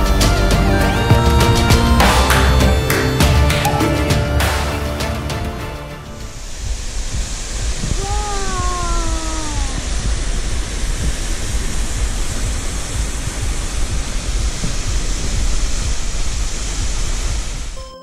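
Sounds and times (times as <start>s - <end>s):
low buffeting rumble: 6.2s - 17.8s
wind gusting across microphone: 6.2s - 17.8s.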